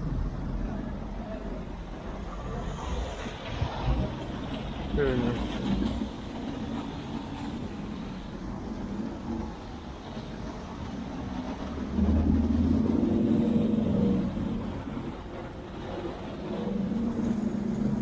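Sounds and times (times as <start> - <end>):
traffic noise: 0.0 - 18.0.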